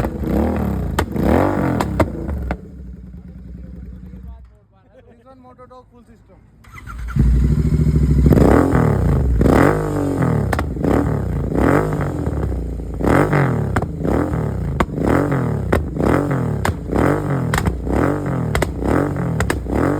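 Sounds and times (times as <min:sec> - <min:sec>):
motorcycle engine revving: 0:00.0 - 0:04.4, 0:06.7 - 0:19.9
exhaust pops and crackles: 0:00.0 - 0:04.6, 0:10.2 - 0:19.9.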